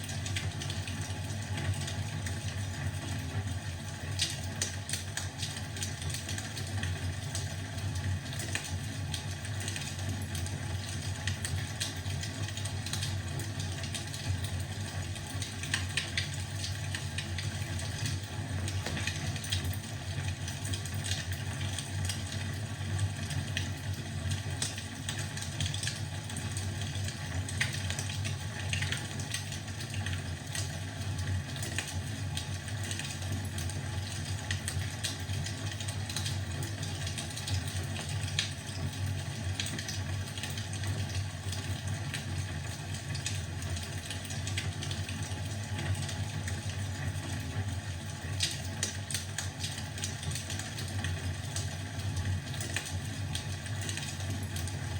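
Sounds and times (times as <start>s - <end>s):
wood fire crackling: 13.8s - 22.2s.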